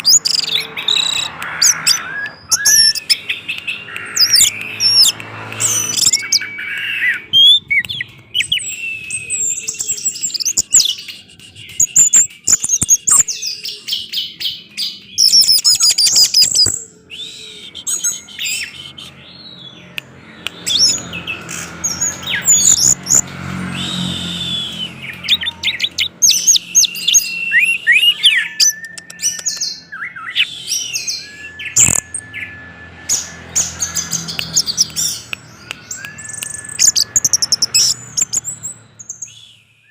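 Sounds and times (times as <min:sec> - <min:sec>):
thrush singing: 0:00.0 - 0:15.3.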